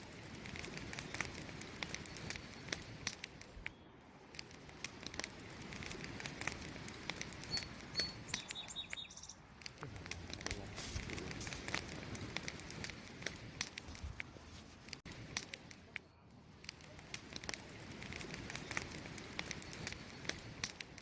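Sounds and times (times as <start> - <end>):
campfire crackling: 0.0 - 21.0
bird chirping: 7.4 - 9.5.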